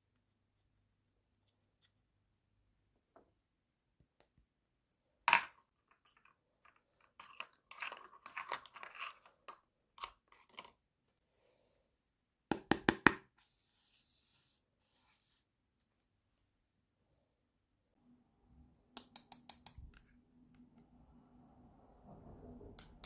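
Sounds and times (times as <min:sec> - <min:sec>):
plastic pieces clacking: 0:05.3 - 0:10.8
plastic toy click: 0:19.0 - 0:19.9.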